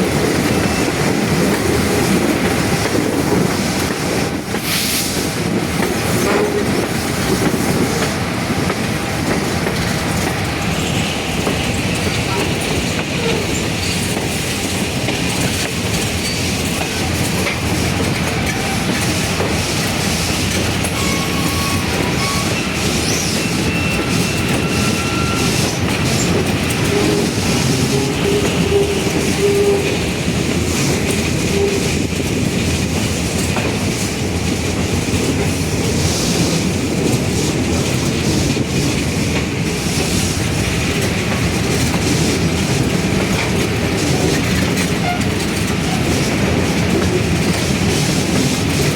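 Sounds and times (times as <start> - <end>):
train wheels clacking over rails: 0.0 - 48.9
faint train squeals: 16.2 - 16.6, 20.8 - 30.0.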